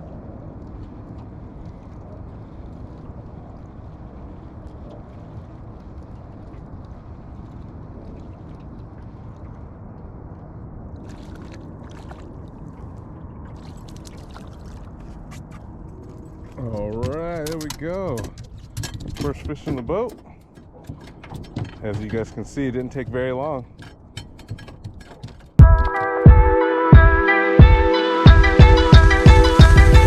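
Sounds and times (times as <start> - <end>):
water around hull: 0.0 - 26.0
short sharp crackling or splashing: 11.0 - 12.6
boat motor running: 16.6 - 30.0.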